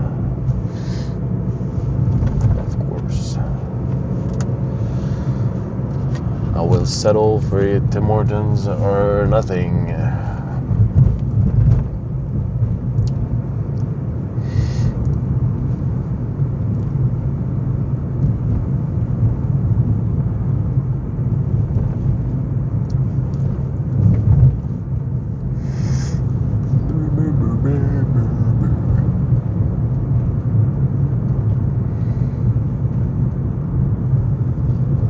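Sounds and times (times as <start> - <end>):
car interior road rumble: 0.0 - 35.0.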